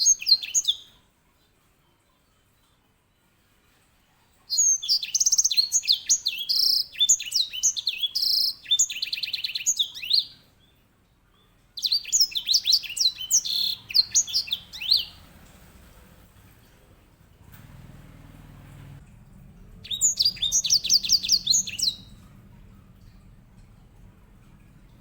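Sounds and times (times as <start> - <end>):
finch singing: 0.0 - 0.9, 4.5 - 10.5, 11.8 - 16.4, 19.6 - 25.0.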